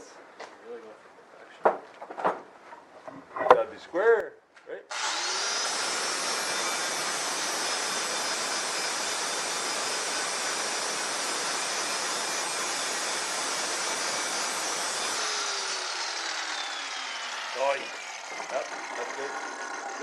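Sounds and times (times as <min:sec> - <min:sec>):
angle grinder grinding steel: 0:04.9 - 0:20.0.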